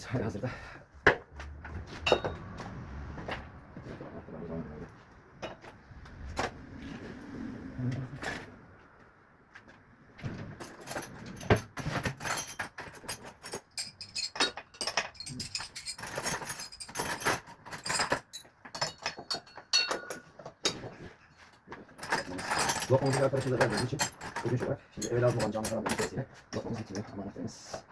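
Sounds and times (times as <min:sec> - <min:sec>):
metal hand tools clinking: 0:02.0 - 0:02.4, 0:10.6 - 0:27.9.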